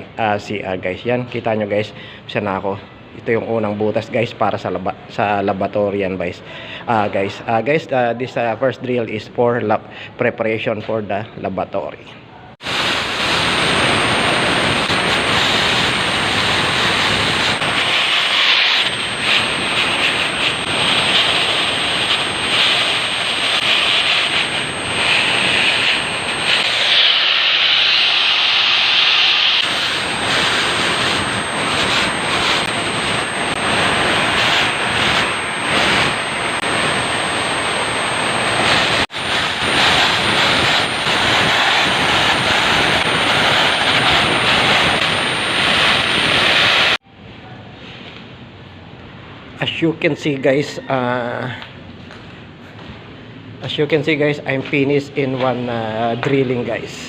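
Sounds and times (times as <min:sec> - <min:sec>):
core drill grinding concrete: 0:12.8 - 0:47.0.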